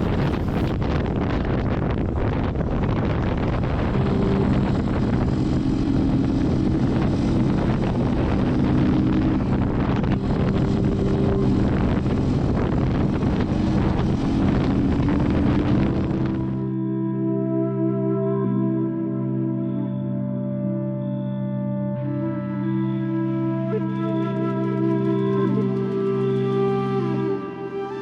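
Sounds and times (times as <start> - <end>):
wind rushing over microphone: 0.0 - 16.8
soft ambient music chords: 0.0 - 28.0.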